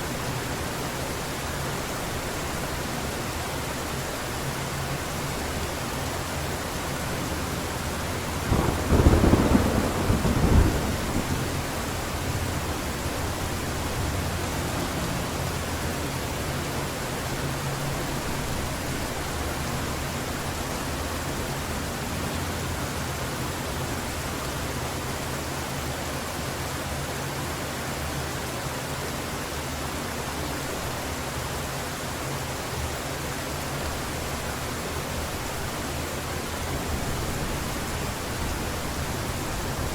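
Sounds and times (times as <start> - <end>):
heavy rain falling: 0.0 - 27.2, 28.0 - 39.9
thunder rumbling: 7.2 - 14.4.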